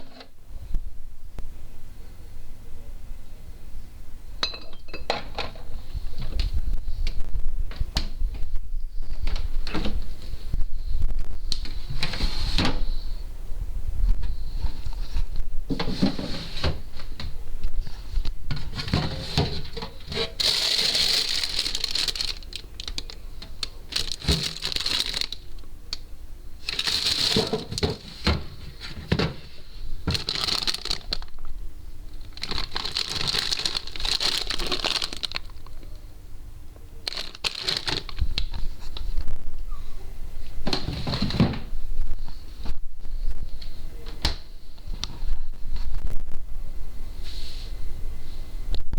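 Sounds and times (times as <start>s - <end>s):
steady low hum: 0.0s - 48.9s
packaging rustling and crinkling: 18.6s - 25.6s, 26.6s - 29.2s, 30.0s - 31.5s, 32.1s - 35.8s, 37.0s - 38.7s.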